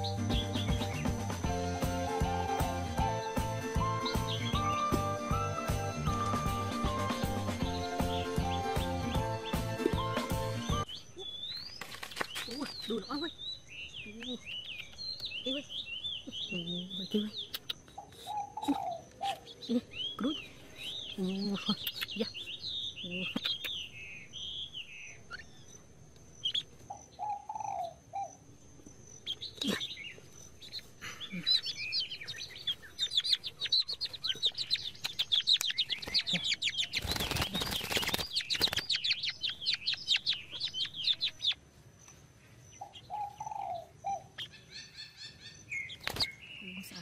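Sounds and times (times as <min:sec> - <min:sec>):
small bird chirping: 0:00.0 - 0:06.5, 0:07.2 - 0:47.0
wings fluttering: 0:11.7 - 0:13.0, 0:35.0 - 0:39.3, 0:46.0 - 0:46.4.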